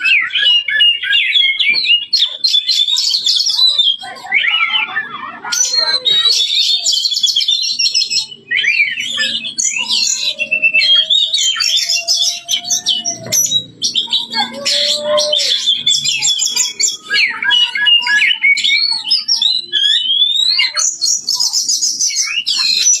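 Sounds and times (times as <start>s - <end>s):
bird singing trills and whistles: 0.0s - 23.0s.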